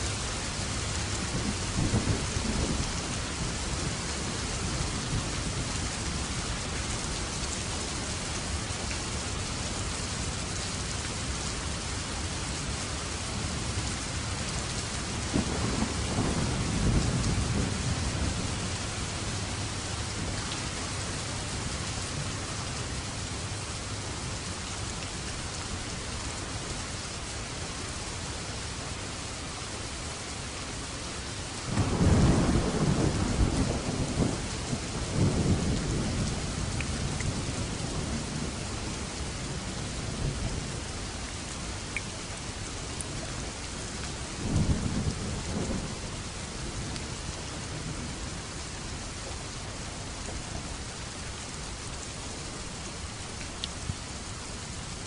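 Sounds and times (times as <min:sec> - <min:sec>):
steady rain falling: 0:00.0 - 0:55.0
rolling thunder: 0:15.3 - 0:20.4, 0:31.7 - 0:38.7.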